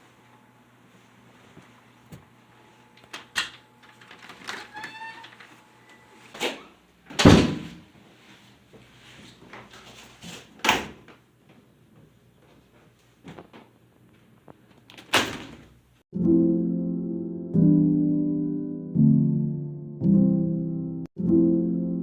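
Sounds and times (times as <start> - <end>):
doors or cupboards banging: 7.1 - 7.8.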